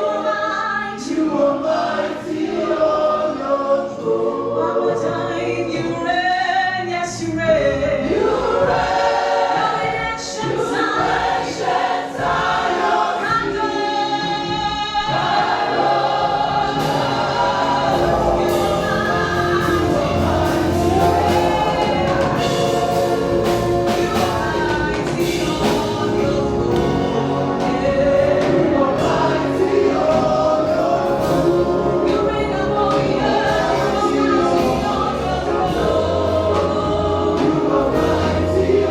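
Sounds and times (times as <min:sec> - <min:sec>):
choir singing gospel: 0:00.0 - 0:38.9
bass and beat: 0:15.2 - 0:38.9.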